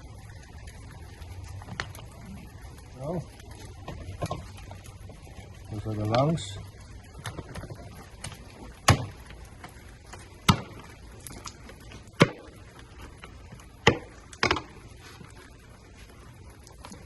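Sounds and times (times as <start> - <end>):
crab being chopped: 13.8 - 14.6.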